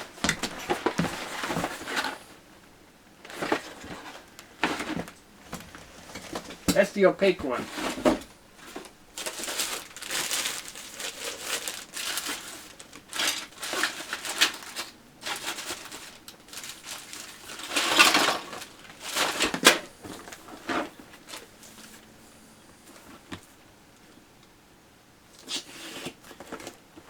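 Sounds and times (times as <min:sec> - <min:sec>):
packaging crinkling: 0:07.6 - 0:22.0.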